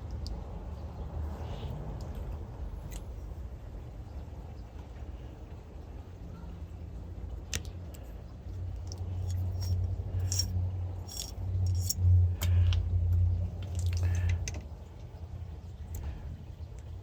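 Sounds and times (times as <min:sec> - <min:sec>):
low hum: 0:00.0 - 0:17.0
small metal parts clinking: 0:08.9 - 0:12.5.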